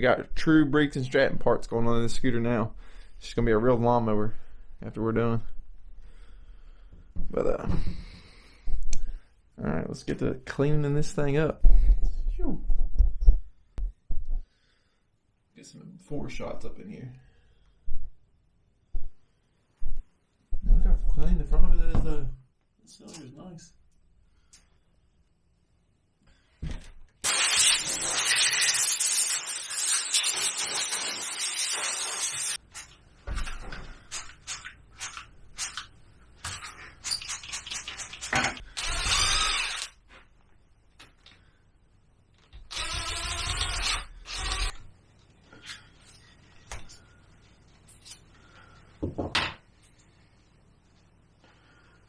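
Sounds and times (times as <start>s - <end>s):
aerosol can spraying: 27.2s - 32.6s.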